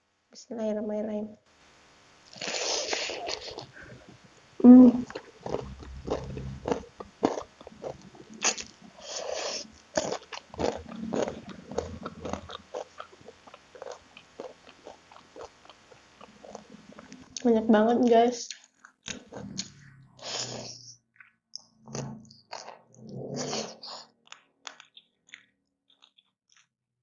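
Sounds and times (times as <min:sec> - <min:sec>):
chewing crispy chicken: 0:02.3 - 0:04.2, 0:04.9 - 0:26.8
person humming: 0:02.9 - 0:07.0.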